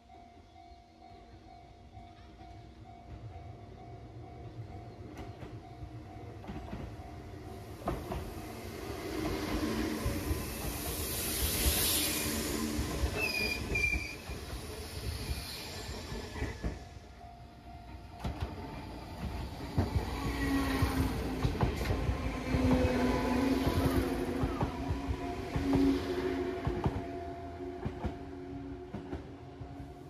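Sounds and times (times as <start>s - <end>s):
train wheels rumbling on rail: 4.9s - 30.0s
high wheel squeal: 10.2s - 16.6s.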